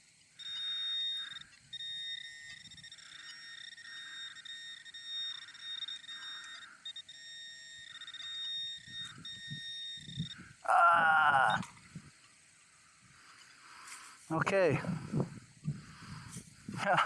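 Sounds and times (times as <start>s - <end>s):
metal detector high-pitched tone: 0.4s - 11.8s
low wind rumble: 7.6s - 17.0s.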